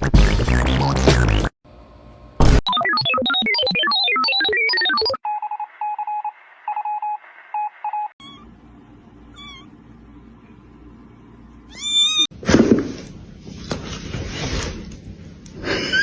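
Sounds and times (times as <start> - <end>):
electronic beeps: 2.7 - 8.1
cat meowing: 8.2 - 8.5, 9.3 - 9.7, 11.7 - 12.3.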